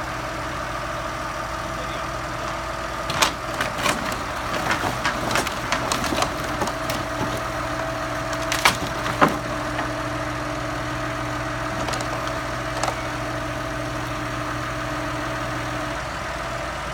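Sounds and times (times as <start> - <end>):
tractor engine running: 0.0 - 16.9
wood clattering and knocking: 2.4 - 10.5, 11.6 - 14.2.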